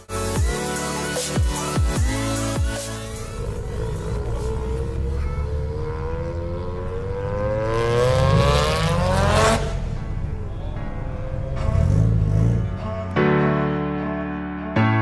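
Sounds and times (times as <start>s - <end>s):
background music: 0.0s - 15.0s
car engine revving: 2.0s - 13.2s.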